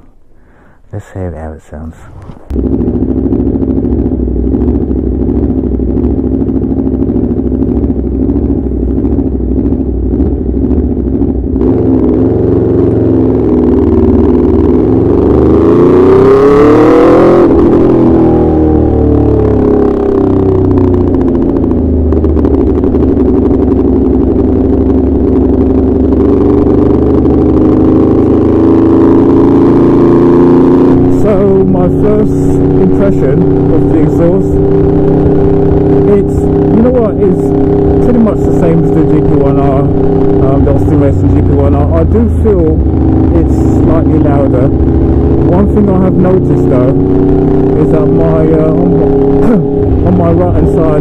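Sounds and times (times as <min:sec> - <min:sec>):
motorcycle engine pulsing exhaust: 0:02.1 - 0:51.0.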